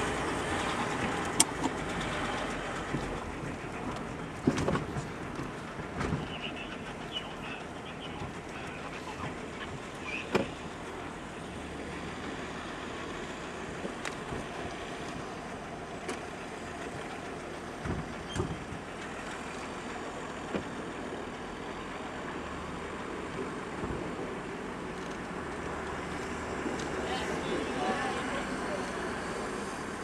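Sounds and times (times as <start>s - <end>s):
car engine and tyre hum: 0.0s - 30.0s
sharp knocks and clunks: 17.8s - 18.8s.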